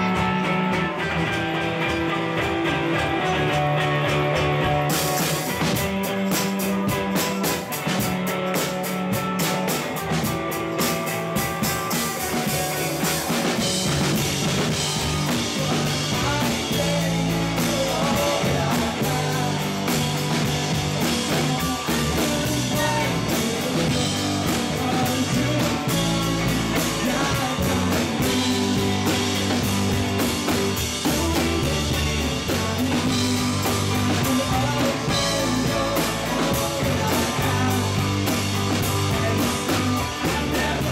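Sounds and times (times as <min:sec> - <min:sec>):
bass guitar: 0:00.0 - 0:40.9
drum kit: 0:00.0 - 0:40.9
electric guitars: 0:00.0 - 0:40.9
person singing: 0:14.6 - 0:40.9.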